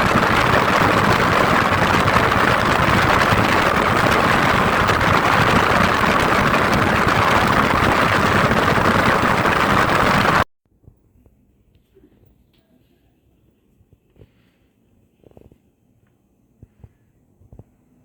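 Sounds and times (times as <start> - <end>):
engine rushing noise: 0.0 - 10.5.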